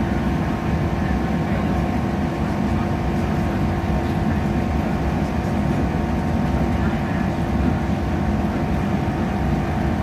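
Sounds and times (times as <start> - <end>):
train rumble inside carriage: 0.0 - 10.0.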